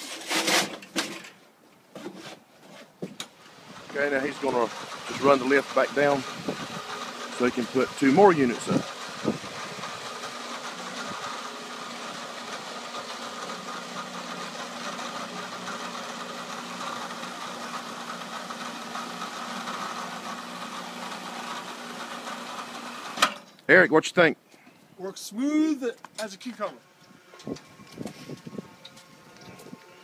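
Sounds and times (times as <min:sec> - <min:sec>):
electric motor humming: 0:03.4 - 0:23.3, 0:26.4 - 0:30.0.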